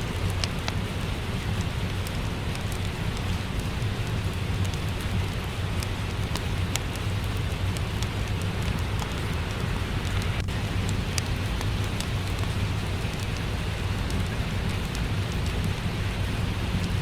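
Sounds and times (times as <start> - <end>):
low continuous rumble: 0.0 - 17.0
steady rain: 0.0 - 17.0
wood fire crackling: 0.0 - 17.0.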